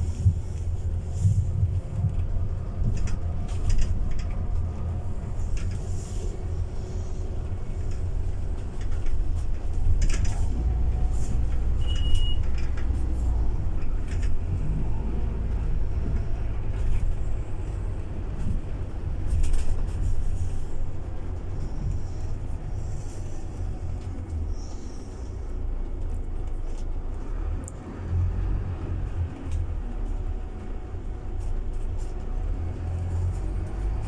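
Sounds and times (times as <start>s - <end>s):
bus engine and road rumble: 0.0s - 34.0s
short high beep: 11.8s - 12.4s.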